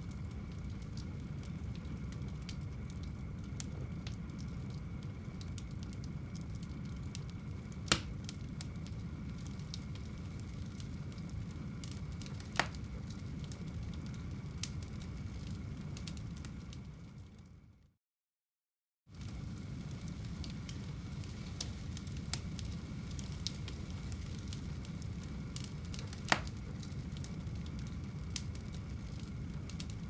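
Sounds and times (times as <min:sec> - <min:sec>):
fire crackling and popping: 0:00.0 - 0:17.6, 0:19.1 - 0:30.0
fire rumbling: 0:00.0 - 0:17.8, 0:19.1 - 0:30.0.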